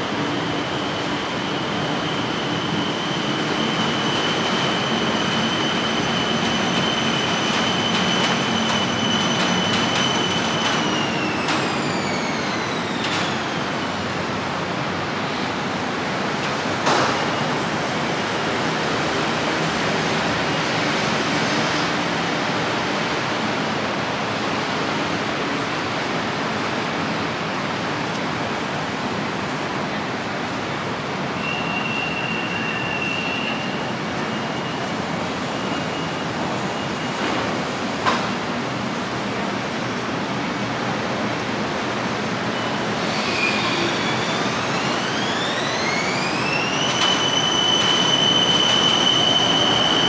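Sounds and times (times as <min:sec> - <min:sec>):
electric train whine and rolling: 0:00.0 - 0:50.0.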